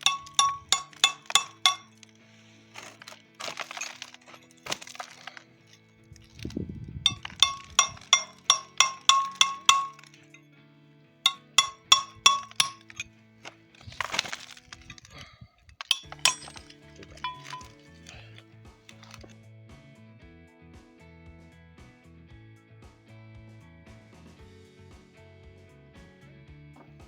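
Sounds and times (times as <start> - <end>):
ringing metal-on-metal strikes: 0.0 - 2.0, 7.1 - 10.4, 11.3 - 13.0, 15.8 - 18.3.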